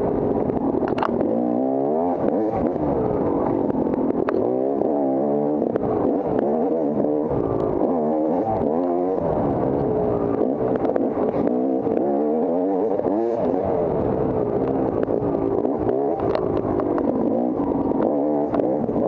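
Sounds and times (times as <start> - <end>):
bike clicks and clatter: 0.0 - 1.3, 3.4 - 4.5, 14.5 - 19.0
dirt bike engine revving: 0.0 - 19.0.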